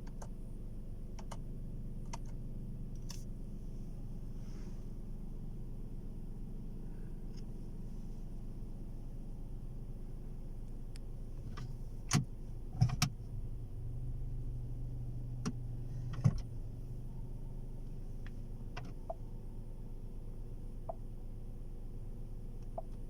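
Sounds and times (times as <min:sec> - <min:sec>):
car engine idling: 0:00.0 - 0:23.0
car engine cranking: 0:11.4 - 0:17.6
car control clicks: 0:11.5 - 0:13.2.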